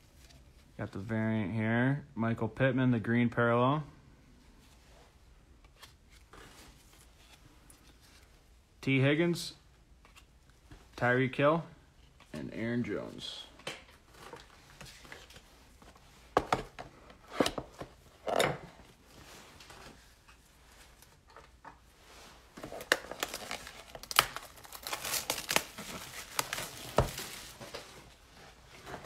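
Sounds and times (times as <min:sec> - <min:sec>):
plastic packaging crinkling and tearing: 0:22.6 - 0:27.9.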